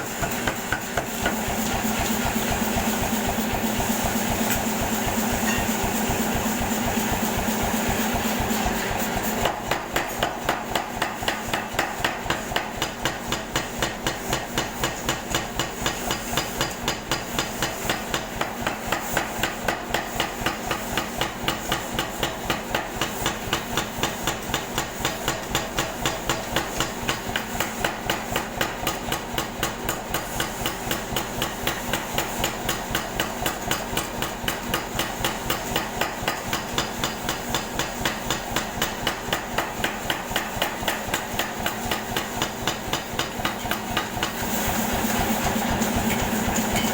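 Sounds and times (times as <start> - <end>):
air hammer striking: 9.4 - 46.9.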